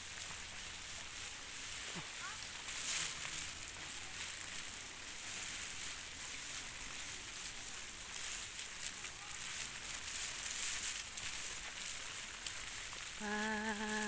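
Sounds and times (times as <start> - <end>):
steady rain falling: 0.0 - 14.0
ticks of raindrops: 0.0 - 14.0.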